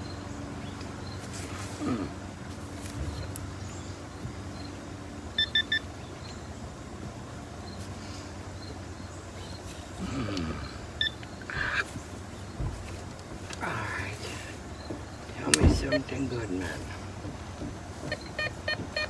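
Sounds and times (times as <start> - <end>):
metal detector beeping: 5.4 - 6.0, 11.0 - 11.9, 15.4 - 17.0, 18.0 - 19.0.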